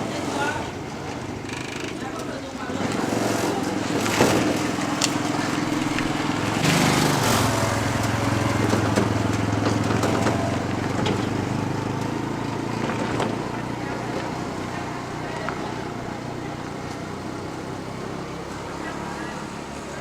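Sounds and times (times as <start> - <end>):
small engine running: 0.0 - 20.0.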